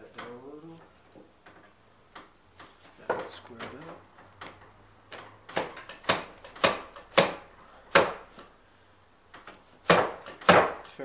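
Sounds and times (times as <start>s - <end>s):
knocks on wood: 9.8s - 10.8s.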